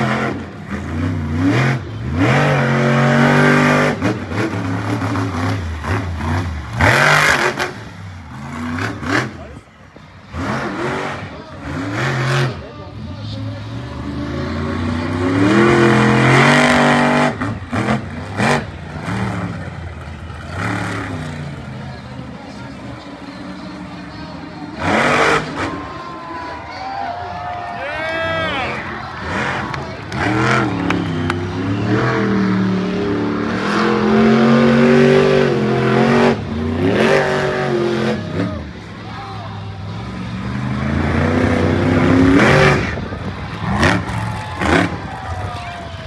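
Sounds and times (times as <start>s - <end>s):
truck engine revving: 0.0s - 46.0s.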